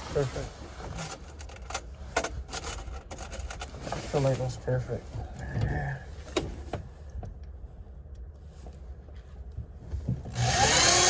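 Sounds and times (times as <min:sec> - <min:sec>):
power drill whirring: 0:10.3 - 0:11.0.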